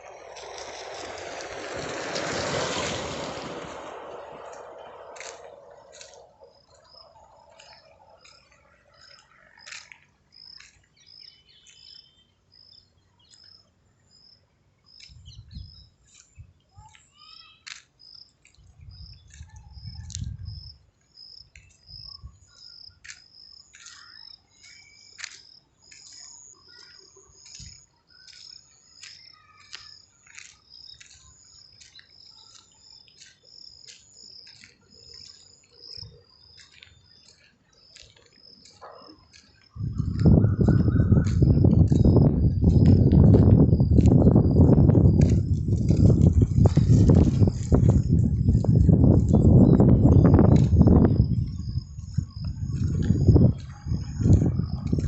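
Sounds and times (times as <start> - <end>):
birds chirping: 3.9 - 55.0
low rumbles: 39.8 - 55.0.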